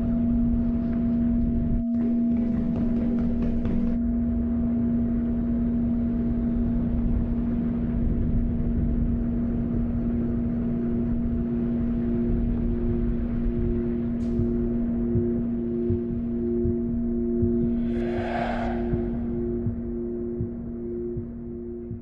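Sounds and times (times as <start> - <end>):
low drone with sustained tones: 0.0 - 22.0
soft pulsing note: 16.0 - 21.9.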